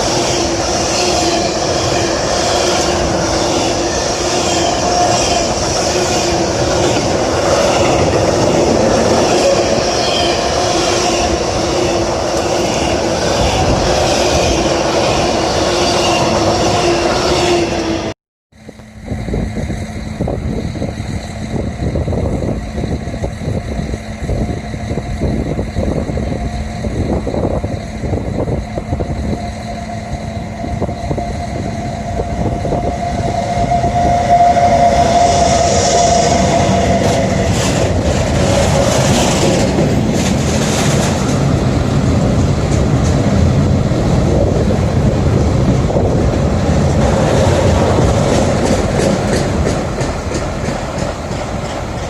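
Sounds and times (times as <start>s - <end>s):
train rumble and hum: 0.0s - 52.0s
wheel squeal: 27.6s - 39.7s
train wheels clattering: 32.1s - 52.0s.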